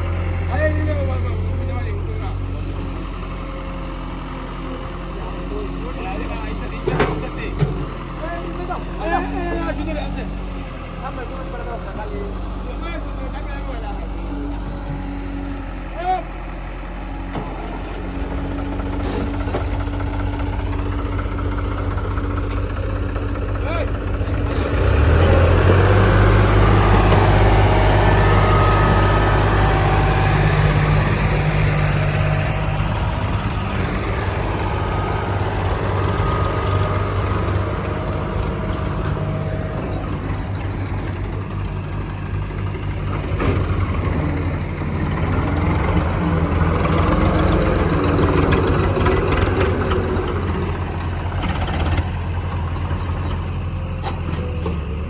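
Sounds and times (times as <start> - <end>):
heavy diesel machinery engine: 0.0 - 55.0.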